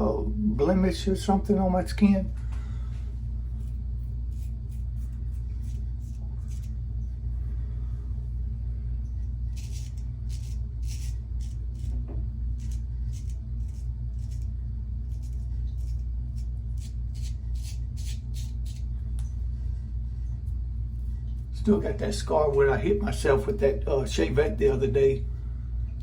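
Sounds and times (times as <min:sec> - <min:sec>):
steady low hum: 0:00.0 - 0:26.0
razor scraping stubble: 0:03.3 - 0:07.2, 0:09.2 - 0:19.3.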